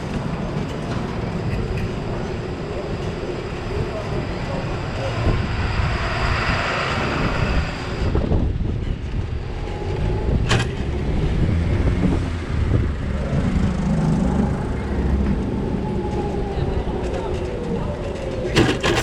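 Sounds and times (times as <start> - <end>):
tyres on street: 0.0 - 19.0
wind on camera: 0.0 - 19.0.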